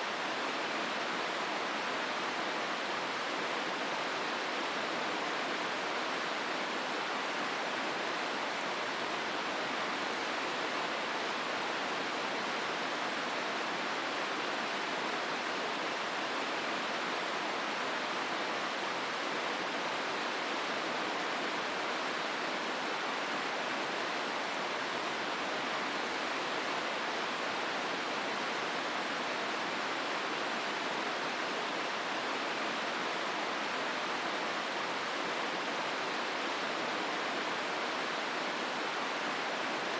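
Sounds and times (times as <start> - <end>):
river water roaring: 0.0 - 39.9.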